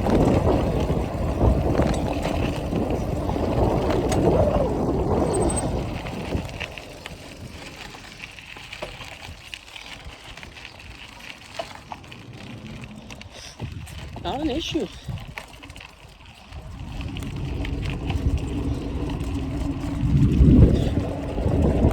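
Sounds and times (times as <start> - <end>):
wind on microphone: 0.0 - 7.7, 12.4 - 15.5, 16.5 - 21.9
bicycle road noise: 0.0 - 21.9.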